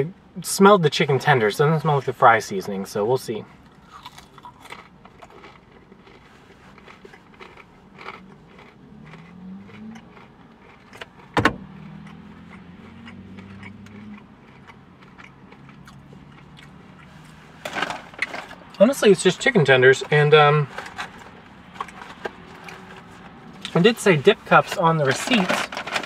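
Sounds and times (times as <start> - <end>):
person chewing: 3.5 - 18.8, 20.6 - 23.8.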